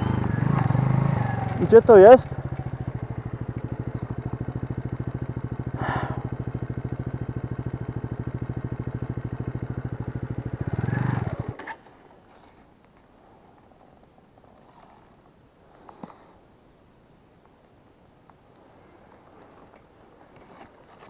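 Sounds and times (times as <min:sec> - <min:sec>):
motorcycle engine running slowly: 0:00.0 - 0:16.3.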